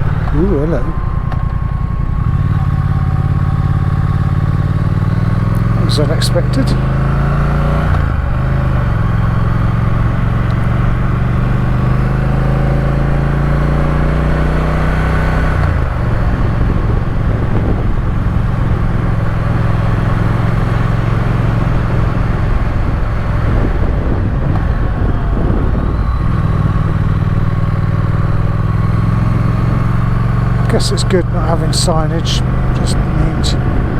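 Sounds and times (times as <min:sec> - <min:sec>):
motorcycle engine running: 0:00.0 - 0:33.9
wind rush over microphone: 0:15.9 - 0:19.1, 0:22.6 - 0:27.6.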